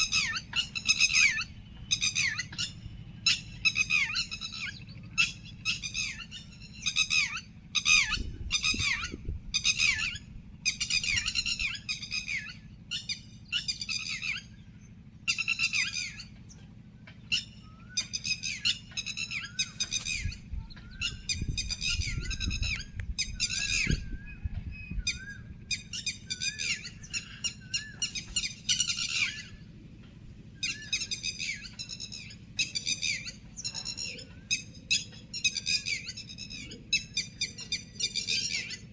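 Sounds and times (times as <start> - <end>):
birds squawking harshly: 0.0 - 38.9
soft wavering bird call: 0.0 - 38.9
low rumble: 8.0 - 11.7, 19.5 - 30.6.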